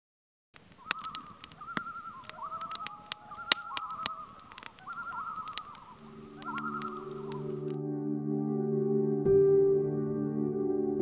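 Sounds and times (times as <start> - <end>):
sharp clicks: 0.6 - 7.8
bird calling wavering notes: 0.8 - 7.8.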